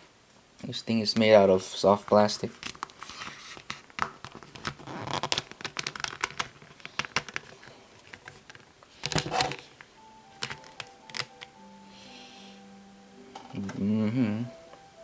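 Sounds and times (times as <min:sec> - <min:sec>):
plastic scrapes: 0:02.9 - 0:09.8.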